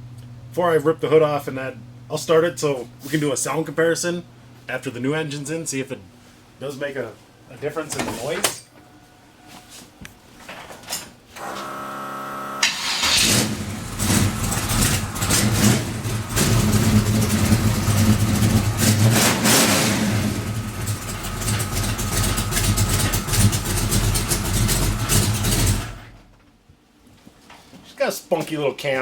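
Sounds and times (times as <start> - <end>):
starter motor cranking: 11.4 - 26.3
truck engine revving: 11.4 - 26.3.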